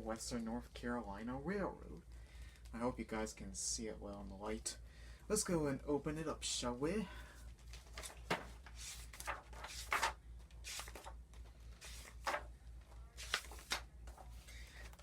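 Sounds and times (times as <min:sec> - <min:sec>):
book pages rustling: 0:07.6 - 0:15.0.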